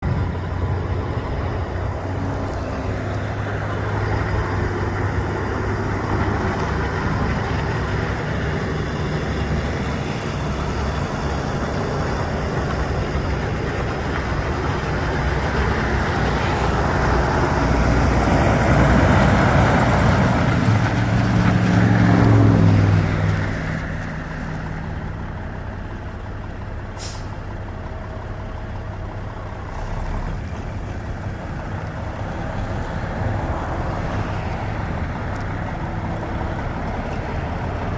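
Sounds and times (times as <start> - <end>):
diesel truck engine revving: 0.0 - 37.9
brief high hiss: 27.0 - 27.4.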